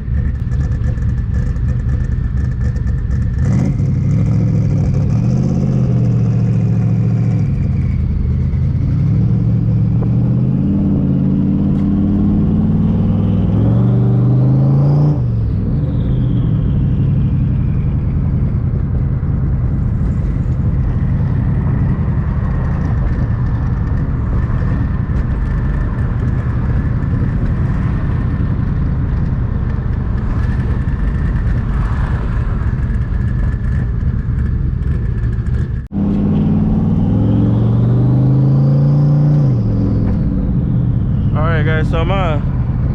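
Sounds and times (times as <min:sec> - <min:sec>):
car engine accelerating: 0:00.0 - 0:42.9.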